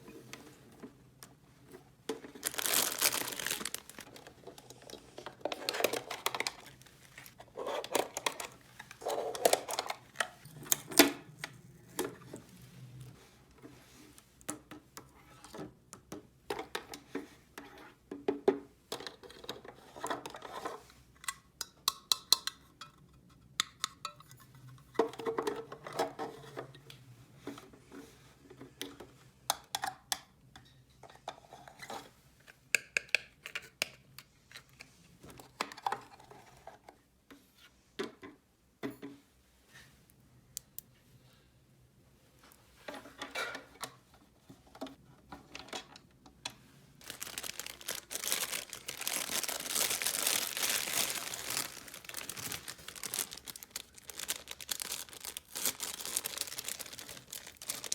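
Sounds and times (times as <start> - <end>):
plastic toy pieces clattering: 2.3 - 10.2, 47.0 - 57.9.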